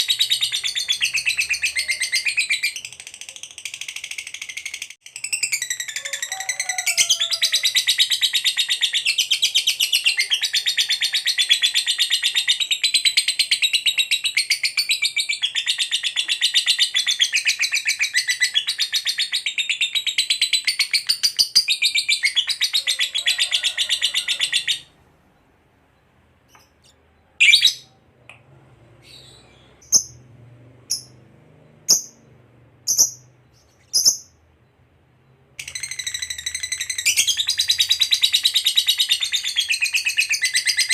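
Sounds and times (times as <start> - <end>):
lovebird sharp chirps: 29.1 - 30.2, 31.8 - 34.6.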